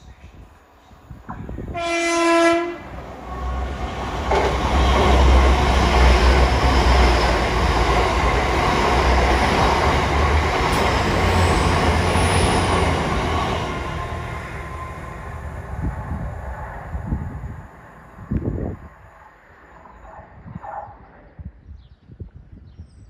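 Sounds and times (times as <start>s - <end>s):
train passing with rumble: 0.1s - 21.2s
train horn blast: 1.7s - 3.8s.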